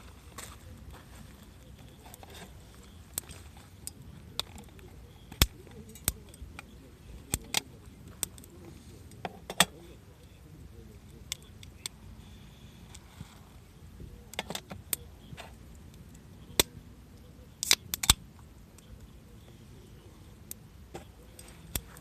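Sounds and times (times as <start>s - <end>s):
low steady rustle: 0.0s - 17.5s
campfire crackling and popping: 0.0s - 22.0s.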